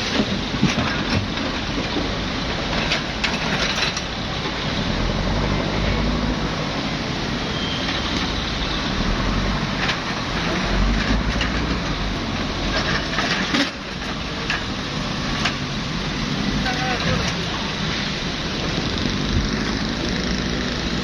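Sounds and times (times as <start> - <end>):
diesel engine running under load: 0.0 - 21.0
metallic knocks and clanks: 9.7 - 17.6.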